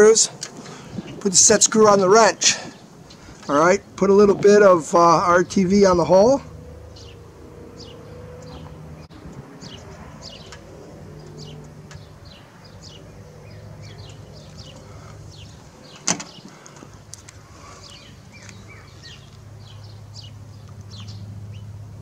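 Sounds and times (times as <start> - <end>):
small birds chirping: 4.4 - 21.8.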